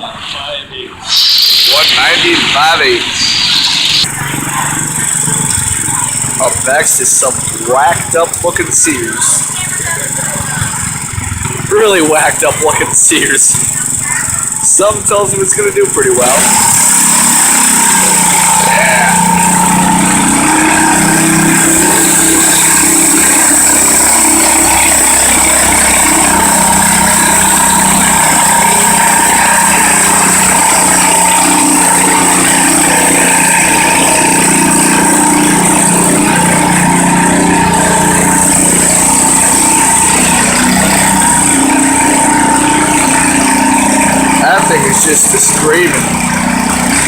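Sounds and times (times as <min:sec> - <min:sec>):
garden tractor engine screaming: 0:01.0 - 0:47.0.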